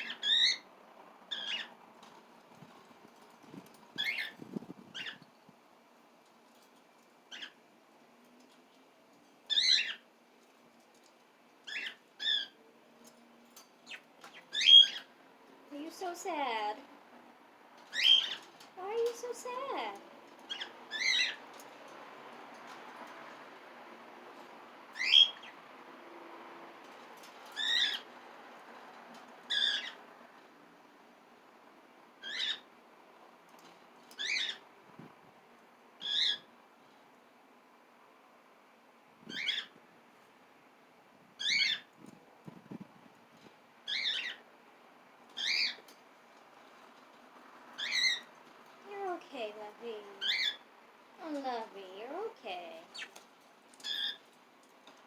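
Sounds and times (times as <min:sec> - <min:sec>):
cockatiel calling: 0:00.0 - 0:00.6, 0:01.3 - 0:01.7, 0:13.9 - 0:15.1, 0:17.9 - 0:18.4, 0:36.0 - 0:36.5, 0:43.9 - 0:44.4, 0:45.4 - 0:45.8, 0:50.2 - 0:50.6.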